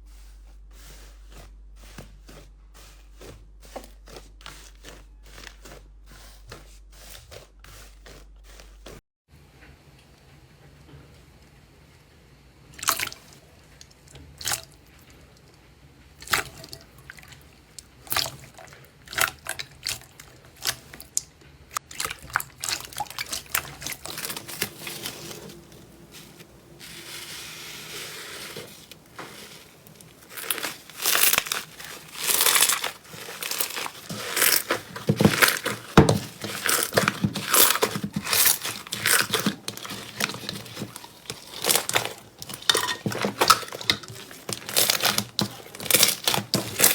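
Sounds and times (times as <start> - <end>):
slime crackling and crunching: 21.8 - 46.9.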